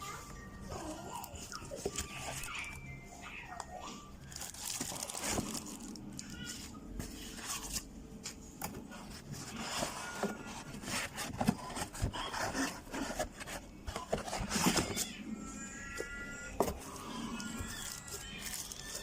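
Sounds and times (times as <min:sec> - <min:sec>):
hard objects rubbing and scraping: 0:08.8 - 0:19.0.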